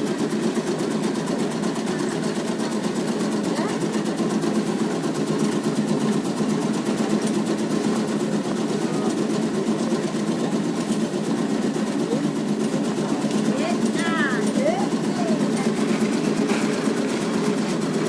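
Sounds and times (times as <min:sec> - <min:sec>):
cutting machine chattering: 0:00.0 - 0:18.0
machine hum: 0:03.5 - 0:18.0.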